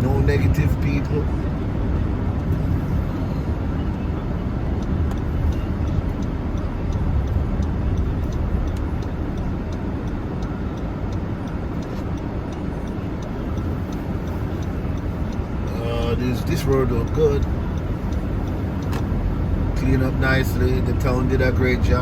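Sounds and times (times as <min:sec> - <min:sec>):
engine and tyre rumble: 0:00.0 - 0:22.0
faint regular ticking: 0:00.0 - 0:22.0.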